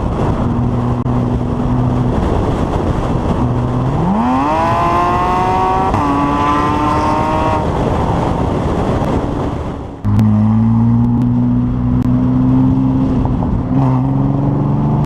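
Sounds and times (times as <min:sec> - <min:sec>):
road and wind noise: 0:00.0 - 0:15.0
car engine revving: 0:00.5 - 0:07.8, 0:10.0 - 0:15.0.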